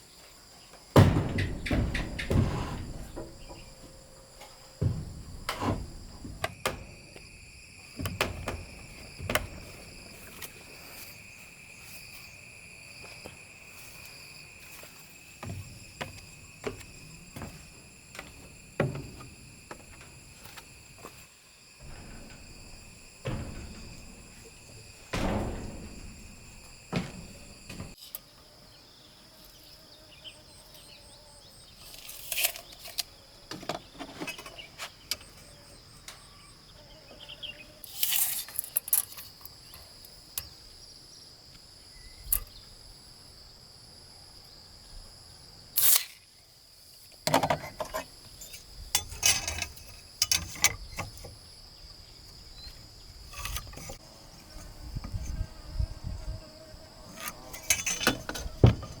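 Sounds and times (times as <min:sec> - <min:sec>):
crickets chirring: 0:00.0 - 0:59.0
wood and tools clattering: 0:00.7 - 0:07.2, 0:07.8 - 0:11.2, 0:14.7 - 0:28.0, 0:31.8 - 0:35.3, 0:47.2 - 0:51.5, 0:52.3 - 0:55.5, 0:57.1 - 0:59.0.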